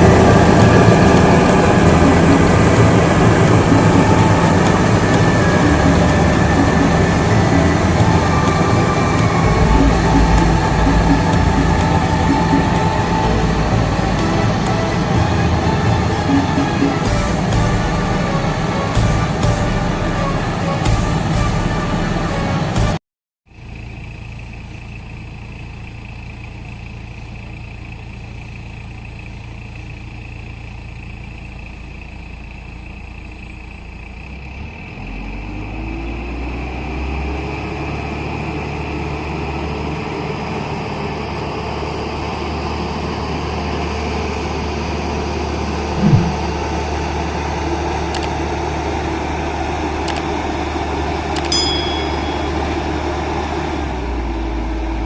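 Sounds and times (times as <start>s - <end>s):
combine harvester running: 0.0s - 22.9s, 23.5s - 55.0s
brief knock: 46.0s - 46.5s.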